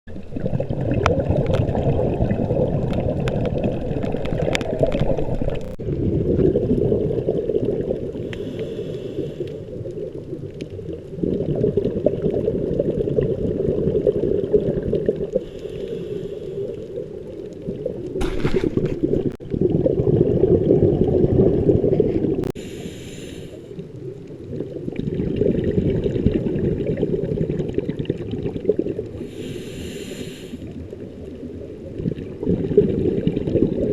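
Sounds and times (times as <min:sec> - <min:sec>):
bubbling exhalations underwater: 0:00.2 - 0:08.3, 0:09.7 - 0:15.5, 0:16.9 - 0:22.6, 0:24.4 - 0:29.3, 0:31.9 - 0:33.9
hissing inhalation: 0:08.2 - 0:09.6, 0:15.4 - 0:16.8, 0:22.5 - 0:23.8, 0:29.2 - 0:30.7.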